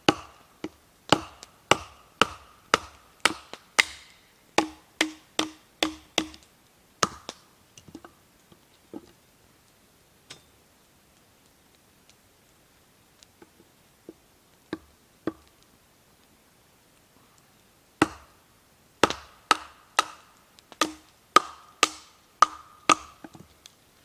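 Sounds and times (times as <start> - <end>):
chopping knocks: 0.0 - 6.4, 18.0 - 18.3, 19.0 - 23.4.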